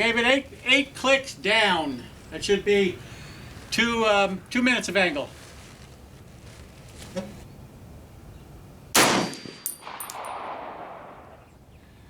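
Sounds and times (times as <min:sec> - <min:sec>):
rifle shot with echo: 0:08.9 - 0:11.4
high metallic clinks: 0:09.6 - 0:10.4.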